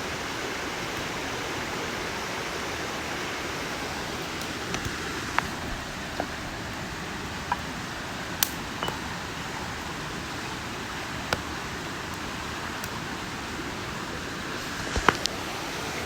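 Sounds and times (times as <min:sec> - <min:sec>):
campfire hissing: 0:00.0 - 0:16.0
fire crackling pops: 0:03.9 - 0:15.4.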